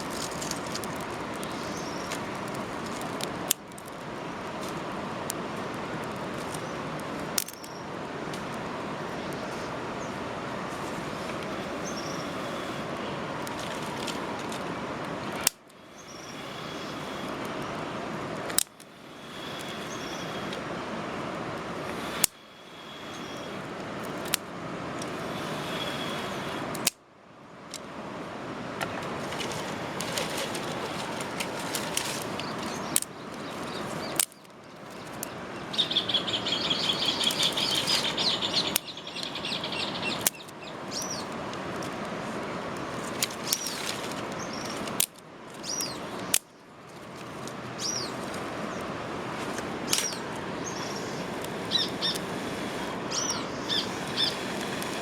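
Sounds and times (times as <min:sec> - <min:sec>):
birds chirping: 0:00.0 - 0:03.2, 0:06.4 - 0:08.0, 0:10.8 - 0:14.6, 0:15.4 - 0:17.8, 0:18.9 - 0:20.6, 0:21.9 - 0:23.7, 0:25.0 - 0:26.6, 0:28.8 - 0:41.4, 0:42.5 - 0:45.0, 0:45.6 - 0:46.6, 0:47.2 - 0:55.0
steady hiss: 0:00.0 - 0:55.0
fast chattering bird call: 0:35.7 - 0:41.2, 0:50.0 - 0:55.0.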